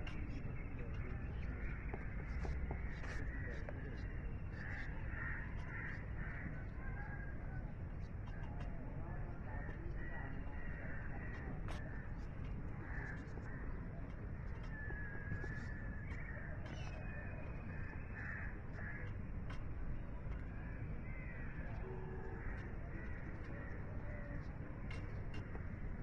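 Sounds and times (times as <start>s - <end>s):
low outdoor rumble: 0.0s - 26.0s
bird calls and chirps: 14.4s - 19.6s.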